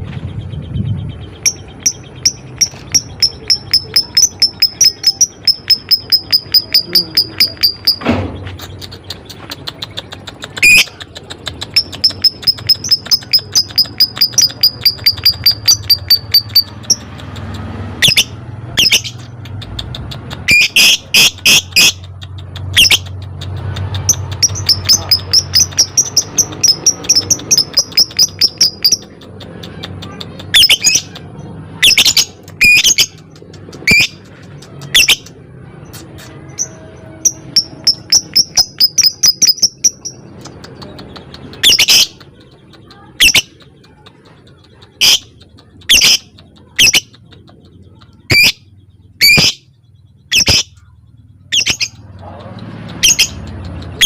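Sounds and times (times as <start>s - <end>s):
lovebird shrill chirps: 1.4s - 8.0s, 18.0s - 19.3s, 30.5s - 31.1s, 36.5s - 40.2s, 41.6s - 42.2s, 45.9s - 47.1s, 50.3s - 50.8s, 51.5s - 52.0s.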